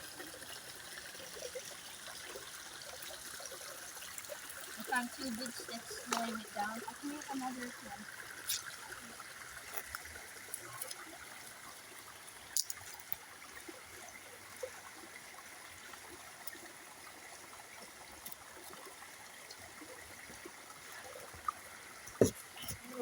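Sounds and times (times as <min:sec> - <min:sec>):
stream trickling: 0:00.0 - 0:23.0.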